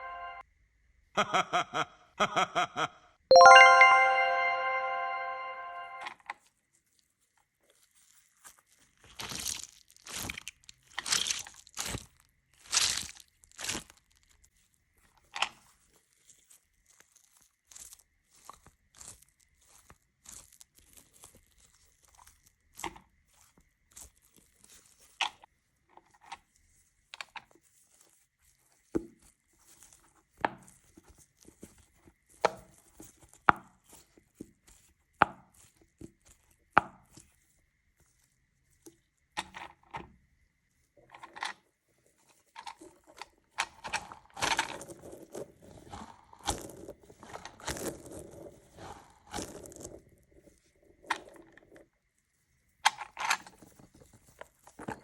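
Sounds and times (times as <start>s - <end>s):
crisp snaps and crunching: 8.4s - 14.4s, 15.4s - 25.3s.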